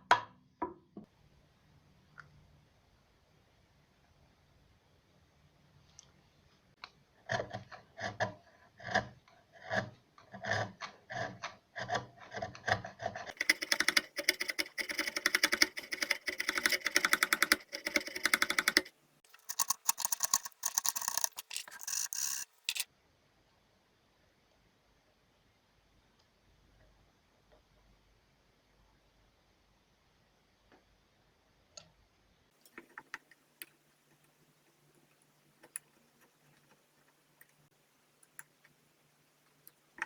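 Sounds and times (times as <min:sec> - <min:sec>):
wood scraping strokes: 0:13.4 - 0:22.8.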